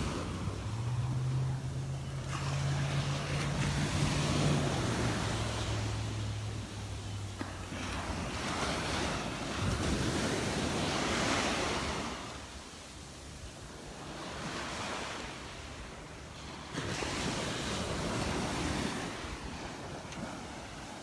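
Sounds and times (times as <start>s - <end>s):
wind on microphone: 0.0s - 12.6s
surf breaking on beach: 0.0s - 21.0s.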